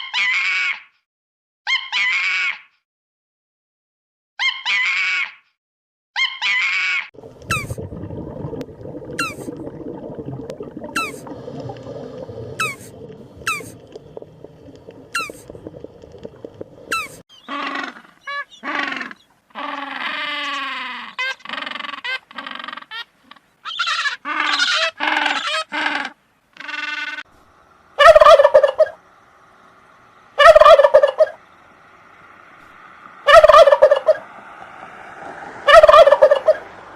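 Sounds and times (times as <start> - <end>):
low rumbling haze: 7.2 - 17.2
animal squealing calls: 12.6 - 13.8, 15.1 - 15.4, 16.9 - 27.2.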